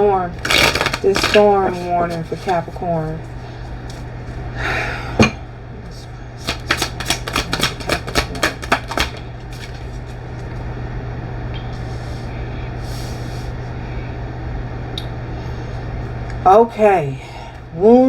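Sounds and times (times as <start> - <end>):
low steady hum: 0.0 - 18.0
cards snapping clicks: 6.5 - 9.7.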